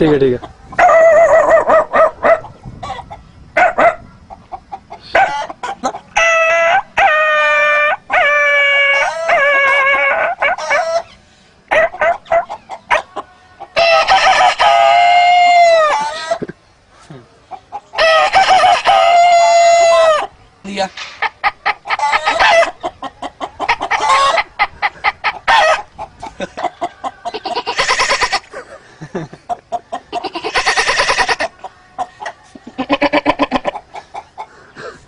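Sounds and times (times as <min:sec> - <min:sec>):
man making clucking sounds: 0:32.6 - 0:35.0.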